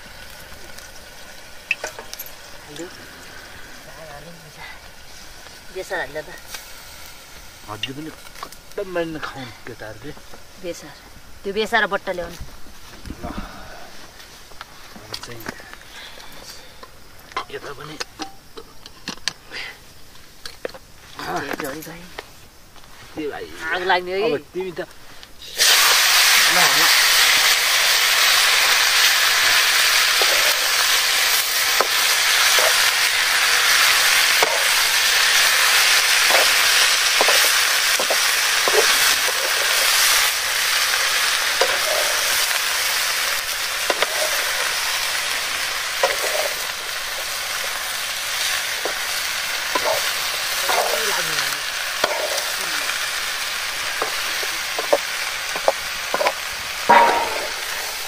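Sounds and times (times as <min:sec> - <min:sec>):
potatoes sizzling in hot oil: 0:00.0 - 0:58.0
metal ladle scraping pan: 0:56.9 - 0:58.0.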